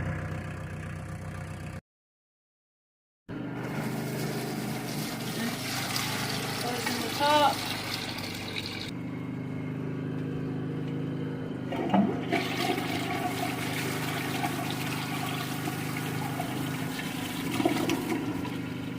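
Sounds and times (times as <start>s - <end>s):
toilet flushing and refilling: 3.7s - 8.9s, 11.7s - 18.9s.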